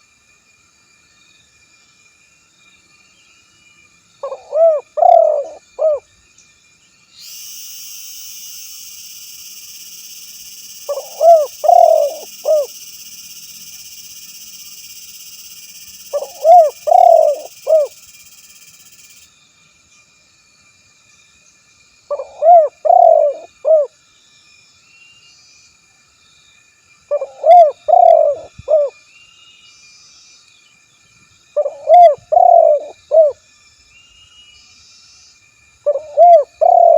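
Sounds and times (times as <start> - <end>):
dove cooing: 4.2 - 6.0, 10.9 - 12.8, 16.1 - 18.0, 22.1 - 23.9, 27.1 - 28.9, 31.6 - 33.4, 35.9 - 36.9
steady high hiss: 5.5 - 22.1.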